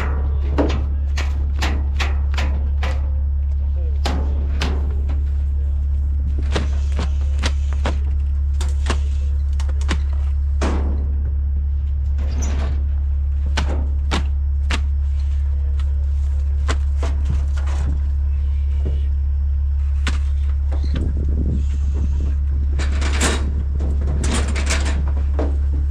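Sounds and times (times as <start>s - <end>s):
sharp knocks and clanks: 0.0s - 5.5s, 6.3s - 11.4s, 12.2s - 15.9s
engine droning: 0.0s - 25.9s.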